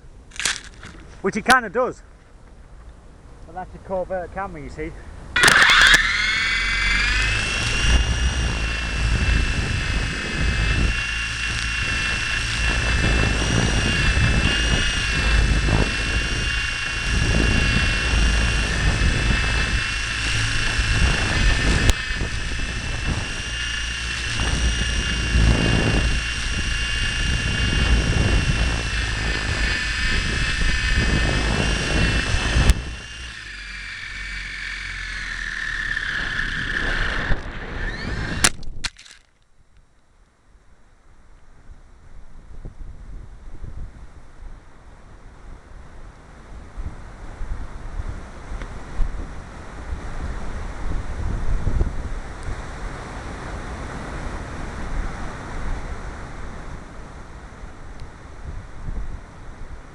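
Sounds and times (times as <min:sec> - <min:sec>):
sharp click: 0:00.3 - 0:01.0, 0:05.4 - 0:06.8, 0:38.2 - 0:39.5
toy helicopter motor whine: 0:00.3 - 0:01.0, 0:05.3 - 0:39.4
air buffeting microphone: 0:06.8 - 0:33.1.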